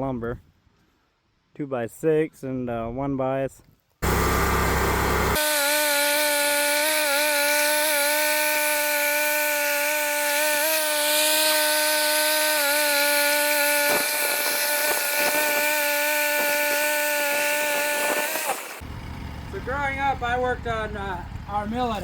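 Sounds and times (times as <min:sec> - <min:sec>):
band sawmill humming: 0:04.0 - 0:20.3.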